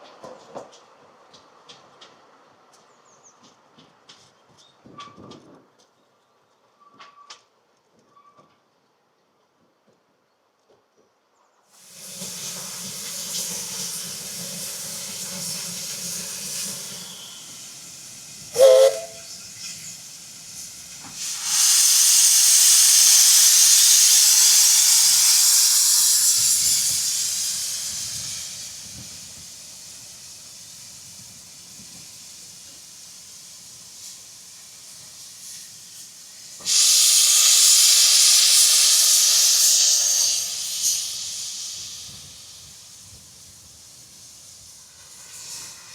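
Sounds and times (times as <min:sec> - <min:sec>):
steam locomotive hissing: 0:11.8 - 0:45.9.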